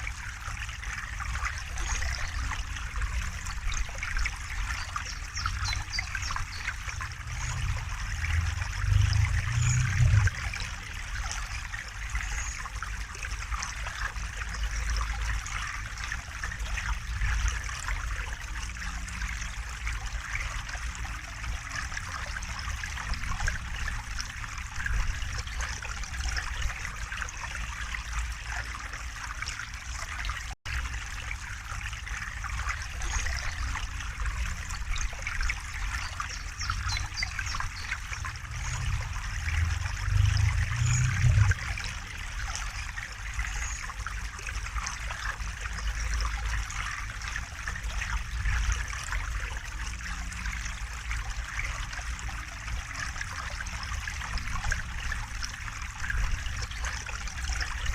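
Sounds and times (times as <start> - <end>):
river water flowing: 0.0 - 57.9
low rumble: 7.0 - 10.7, 37.6 - 42.4.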